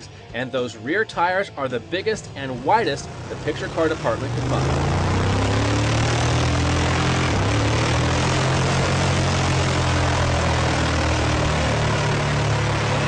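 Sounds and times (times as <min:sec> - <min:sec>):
truck engine droning: 0:01.0 - 0:13.0.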